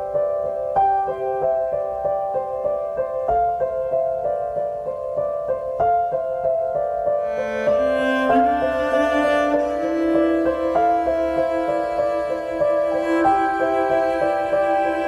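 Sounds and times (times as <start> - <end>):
gentle piano pattern: 0.0 - 15.0.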